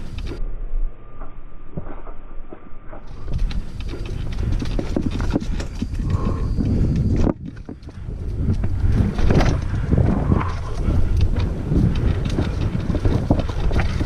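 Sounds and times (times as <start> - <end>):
low rumble: 0.0 - 14.0
bike frame and chain rattling: 3.1 - 14.0.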